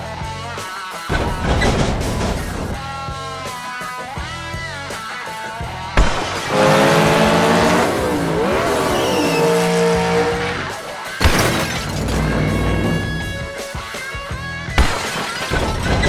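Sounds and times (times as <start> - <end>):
race car engine revving: 6.3 - 13.5
tire squeal: 6.4 - 10.8, 11.4 - 13.5.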